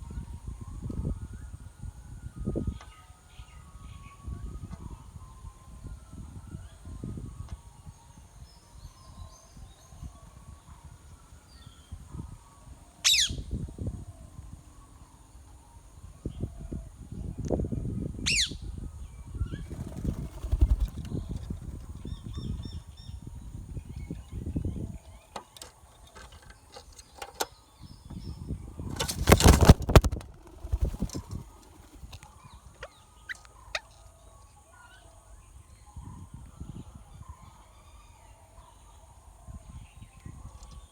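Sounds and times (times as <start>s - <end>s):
parakeet chick screeching: 13.1s - 13.4s.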